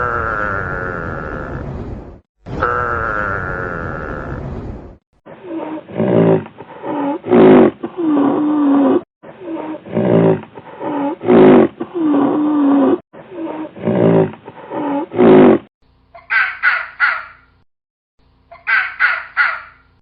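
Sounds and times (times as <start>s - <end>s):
large animal drawn-out call: 0.0s - 1.7s.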